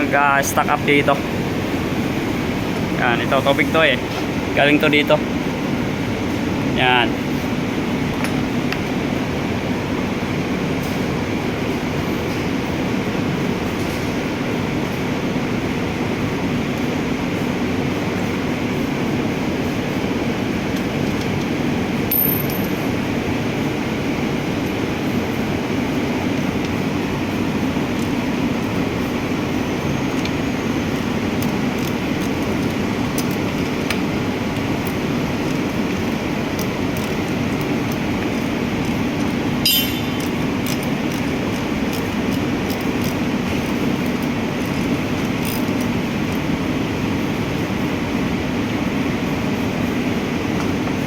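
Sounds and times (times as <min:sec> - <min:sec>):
hand tools clinking on metal: 0:39.6 - 0:40.8.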